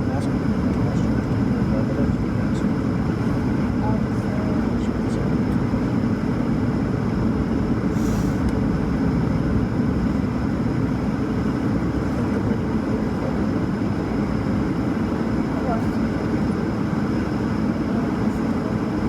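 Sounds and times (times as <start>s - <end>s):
airplane cabin roar: 0.0s - 19.0s.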